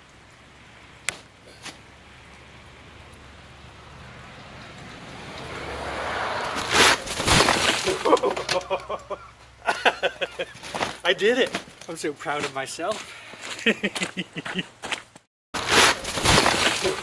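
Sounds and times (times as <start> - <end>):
heavy crashing thuds: 6.5 - 8.2, 15.6 - 17.0.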